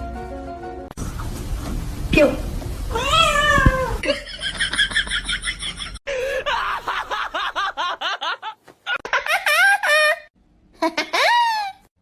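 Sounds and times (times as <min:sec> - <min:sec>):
high-pitched laughter: 0:04.0 - 0:11.9.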